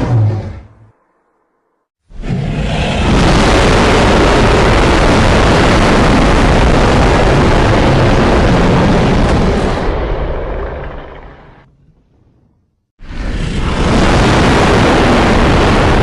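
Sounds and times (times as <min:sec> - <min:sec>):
monster roar: 0:02.2 - 0:04.8.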